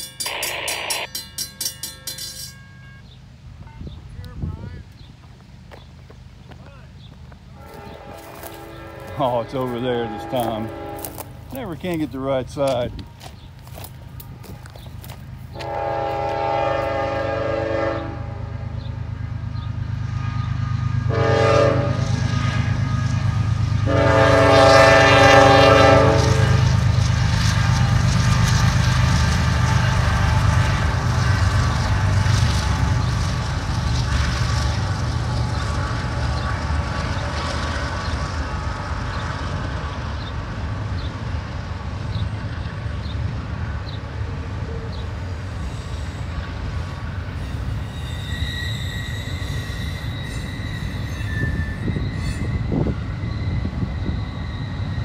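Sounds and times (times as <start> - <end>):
diesel locomotive engines running: 0.0 - 55.0
train horn blasts: 7.6 - 11.6, 15.5 - 19.4, 20.1 - 33.1.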